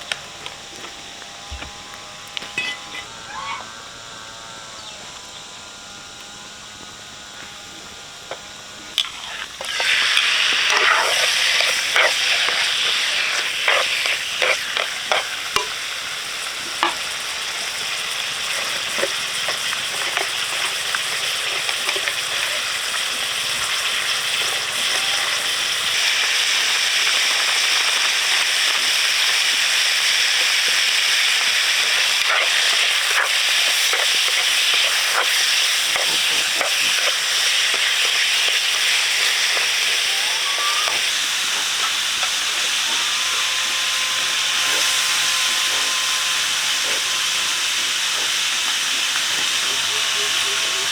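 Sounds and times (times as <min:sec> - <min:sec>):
food sizzling in hot oil: 0:00.0 - 0:03.8, 0:07.9 - 0:50.9
utensil clacking against pan: 0:02.4 - 0:03.1.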